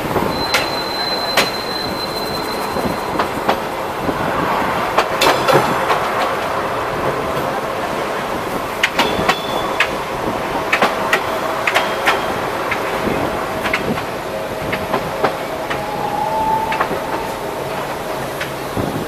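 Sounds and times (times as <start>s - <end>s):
train running noise: 0.0s - 19.0s
wheels clicking over rails: 8.6s - 16.0s.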